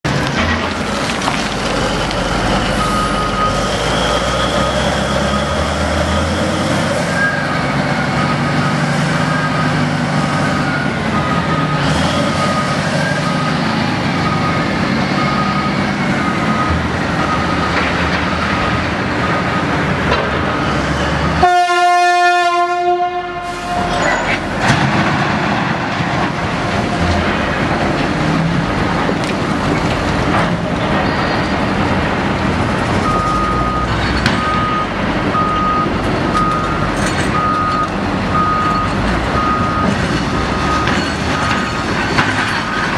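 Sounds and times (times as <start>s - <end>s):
reversing alarm beeping: 2.7s - 5.9s, 7.1s - 19.8s, 33.0s - 41.9s
loud truck horn: 21.3s - 24.3s.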